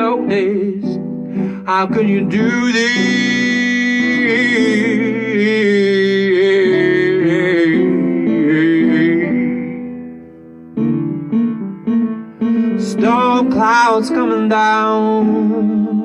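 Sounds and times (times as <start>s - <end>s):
instrumental accompaniment: 0.0s - 16.0s
person singing long wavering note: 15.0s - 16.0s.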